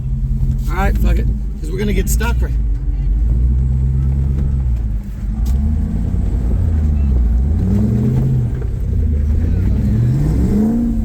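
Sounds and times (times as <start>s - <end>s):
engine revving: 5.3s - 11.0s.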